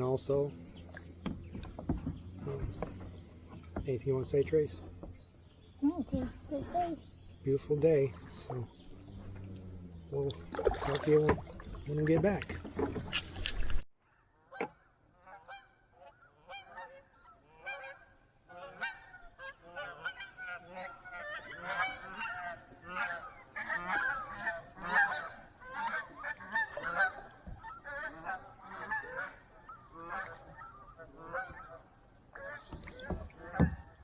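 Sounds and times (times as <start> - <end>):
geese honking: 14.4 - 34.0.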